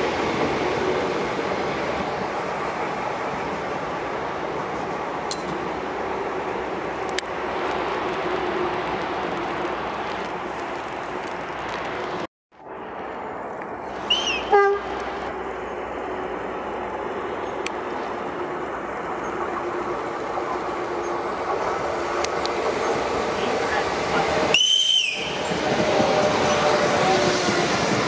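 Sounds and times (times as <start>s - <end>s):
electric train rolling on track: 0.0s - 28.0s
train horn: 14.2s - 14.9s.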